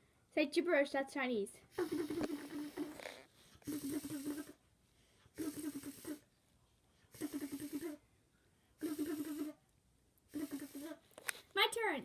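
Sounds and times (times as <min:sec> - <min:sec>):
child making buzzy gibberish sounds: 0:01.7 - 0:04.6, 0:05.4 - 0:06.3, 0:07.2 - 0:08.0, 0:08.8 - 0:09.6, 0:10.3 - 0:11.0.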